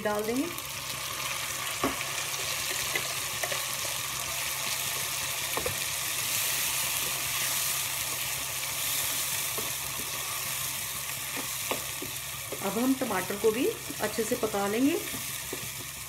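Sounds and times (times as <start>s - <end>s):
onions sizzling in hot ghee: 0.0s - 16.0s.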